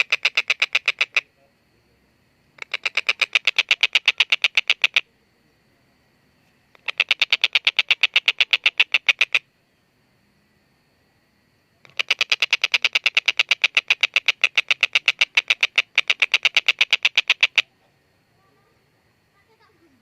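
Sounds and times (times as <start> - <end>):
kingfisher cackling call: 0.0 - 1.3, 2.6 - 5.1, 6.8 - 9.4, 11.8 - 17.7.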